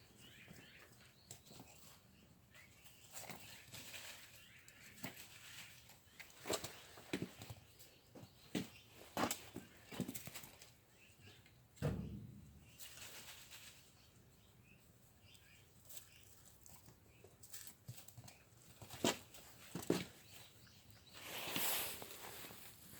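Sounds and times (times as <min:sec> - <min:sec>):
ball thump: 0:11.8 - 0:12.5.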